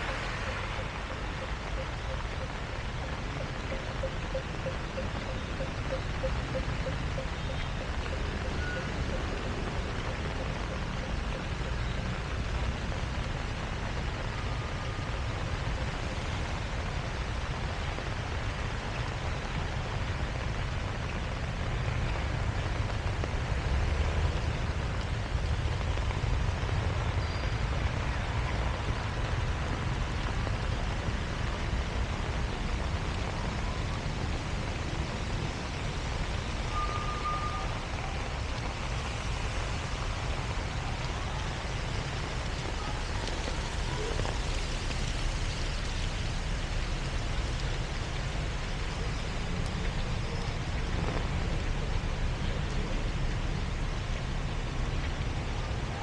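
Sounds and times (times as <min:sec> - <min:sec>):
heavy rain hissing: 0:00.0 - 0:56.0
street traffic rumble: 0:00.0 - 0:56.0
faint short beep: 0:36.7 - 0:37.8.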